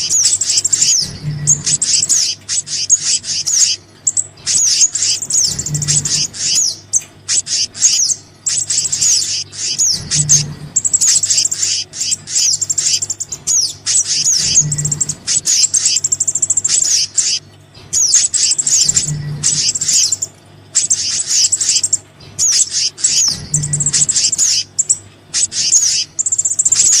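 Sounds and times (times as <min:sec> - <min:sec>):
songbird chirps and whistles: 0:00.0 - 0:27.0
steady low hum: 0:00.0 - 0:27.0.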